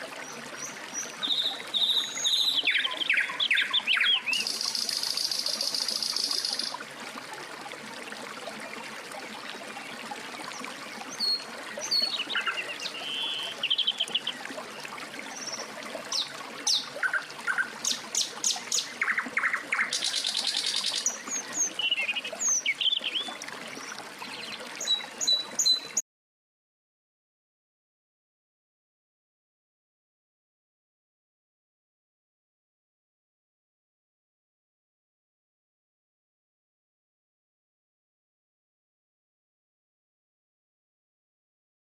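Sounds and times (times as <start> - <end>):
songbirds chirping and whistling: 0.6 - 6.7, 11.1 - 14.4, 15.3 - 23.4.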